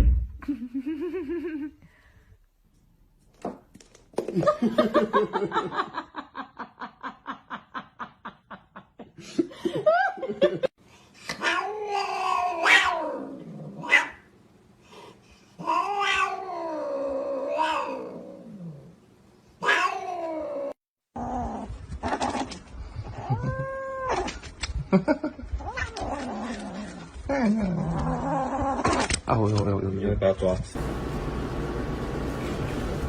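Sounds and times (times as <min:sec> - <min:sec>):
cat yowling: 0:11.4 - 0:14.2, 0:15.6 - 0:18.4, 0:19.6 - 0:20.8.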